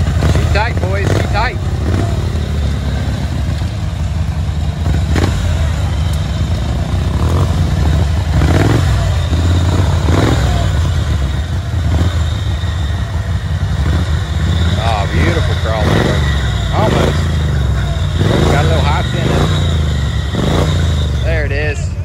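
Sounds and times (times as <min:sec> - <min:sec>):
small engine revving under load: 0:04.8 - 0:21.5.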